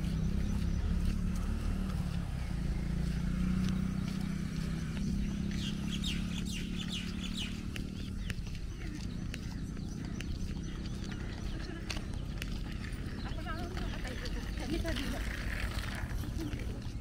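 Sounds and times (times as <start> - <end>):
bird chirping: 0.0 - 17.0
low outdoor rumble: 0.0 - 17.0
faint footstep clicks: 7.6 - 13.4.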